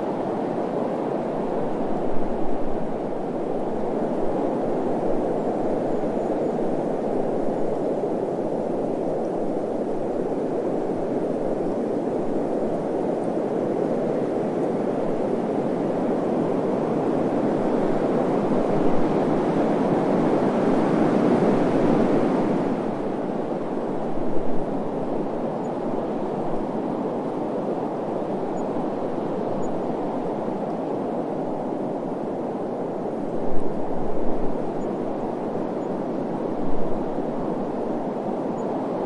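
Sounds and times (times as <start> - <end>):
wind blowing: 0.0 - 39.0.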